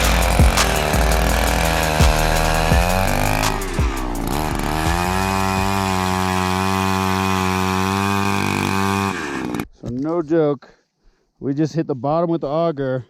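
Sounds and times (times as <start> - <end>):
ice auger engine drilling: 0.0 - 9.7.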